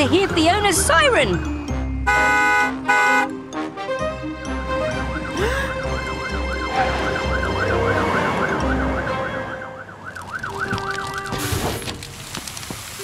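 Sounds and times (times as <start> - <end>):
cartoon fire truck siren: 5.0 - 11.4.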